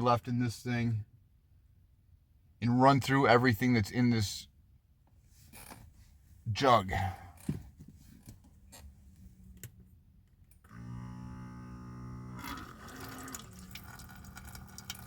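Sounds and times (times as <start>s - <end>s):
water pump buzzing hum: 10.6s - 15.0s
water splashing from tap: 12.6s - 15.0s.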